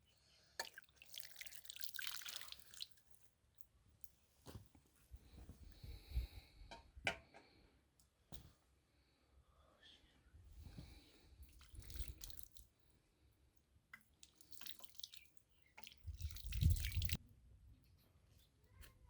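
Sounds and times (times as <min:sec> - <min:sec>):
water splashing and dripping: 0:00.6 - 0:03.0, 0:11.5 - 0:12.7, 0:13.9 - 0:17.2.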